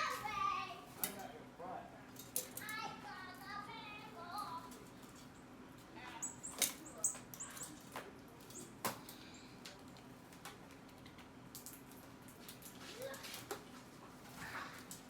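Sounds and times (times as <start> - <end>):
small birds chirping: 5.2 - 7.9.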